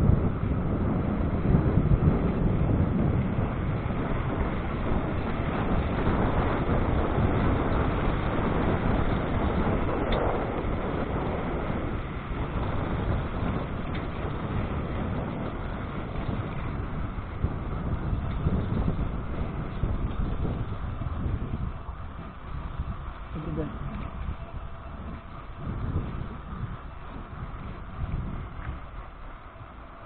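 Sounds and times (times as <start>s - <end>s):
road and wind noise: 0.0s - 30.0s.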